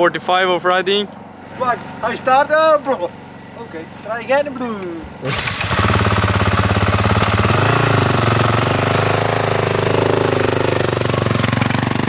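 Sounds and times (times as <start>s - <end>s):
dirt bike engine running: 5.0s - 12.0s.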